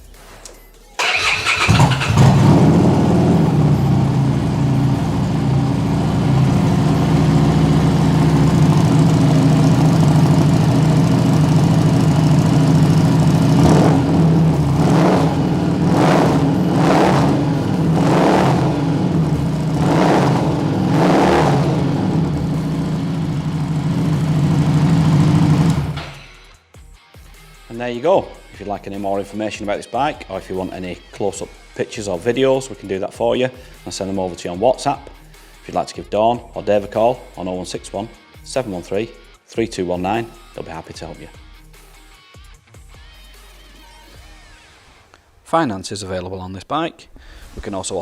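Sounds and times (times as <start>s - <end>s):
motorcycle engine revving: 1.0s - 26.2s
motorcycle engine starting and idling: 1.0s - 26.4s.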